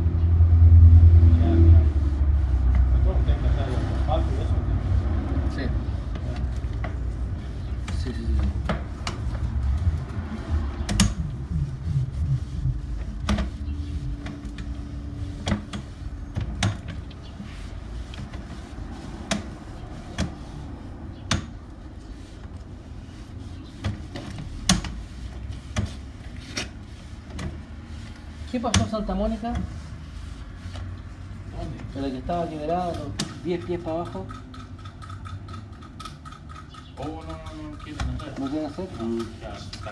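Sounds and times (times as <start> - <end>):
low rumble: 9.1 - 15.3.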